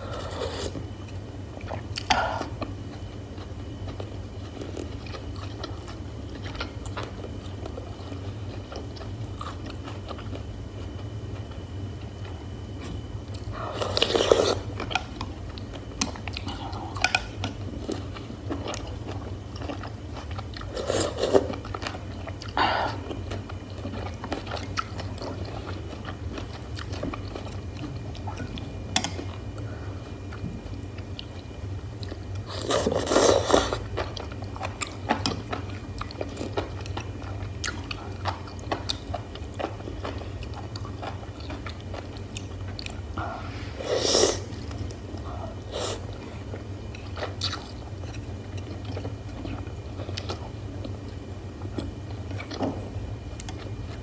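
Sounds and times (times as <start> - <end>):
wet chewing: 44.1 - 52.6.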